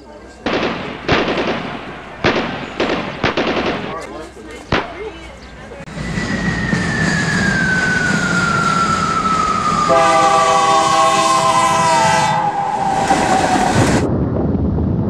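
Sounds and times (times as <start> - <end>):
train cars rumbling and clattering: 0.0 - 14.2
tone gliding down in pitch: 5.9 - 13.8
train horn chord: 9.8 - 12.6.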